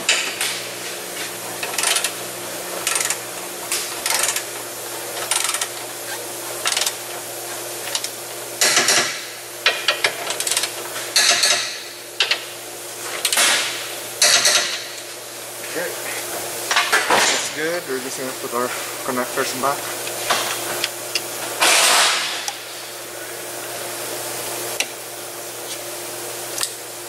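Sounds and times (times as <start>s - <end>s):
ratchet clicking: 1.6s - 2.2s, 2.8s - 3.2s, 4.0s - 4.5s, 5.2s - 5.8s, 6.6s - 7.0s, 7.9s - 12.4s.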